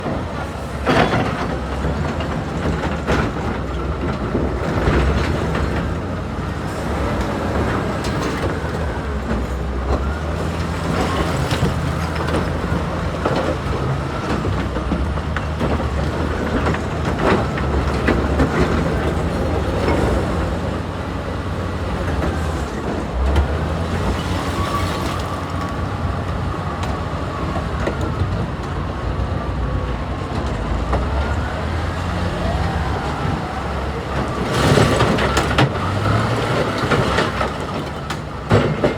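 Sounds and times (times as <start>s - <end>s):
heavy diesel machinery running: 0.0s - 38.9s.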